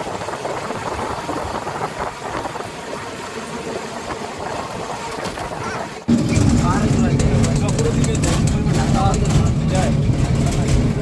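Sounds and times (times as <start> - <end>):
vehicle engine running: 6.1 - 11.0.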